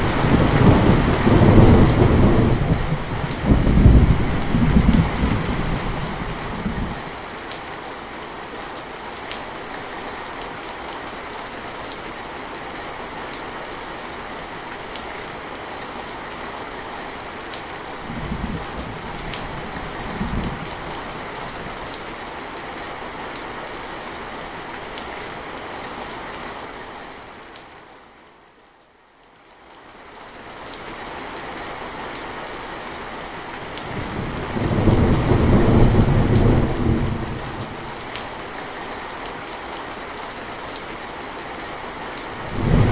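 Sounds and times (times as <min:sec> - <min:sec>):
low thunder rumble: 0:00.0 - 0:07.0, 0:33.9 - 0:38.0, 0:42.4 - 0:42.9
steady rain falling: 0:00.0 - 0:42.9.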